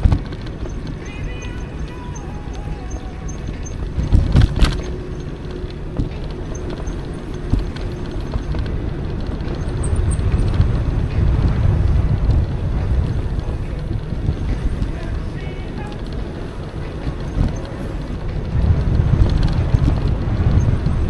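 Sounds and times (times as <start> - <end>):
wind and road rumble: 0.0 - 21.0.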